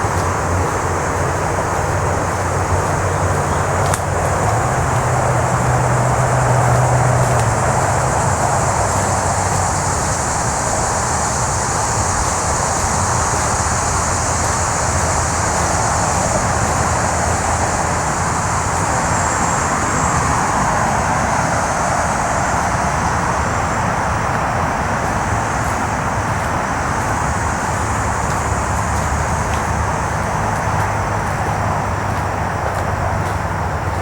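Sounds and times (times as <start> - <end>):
highway traffic noise: 0.0 - 34.0
low engine drone: 0.0 - 34.0.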